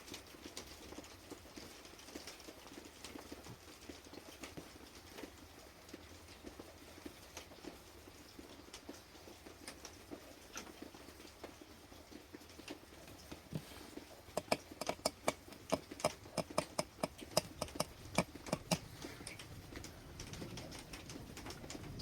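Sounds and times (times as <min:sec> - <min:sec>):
sharp taps: 0:14.4 - 0:19.4.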